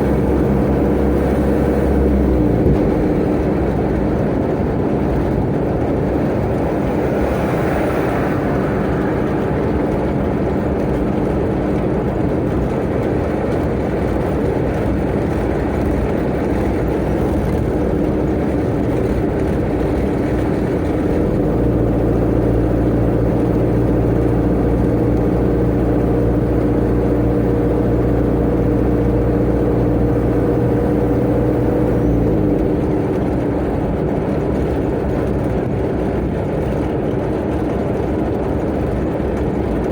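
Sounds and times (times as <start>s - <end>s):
steady droning tone: 0.0s - 14.2s
truck engine and road noise: 0.0s - 39.9s.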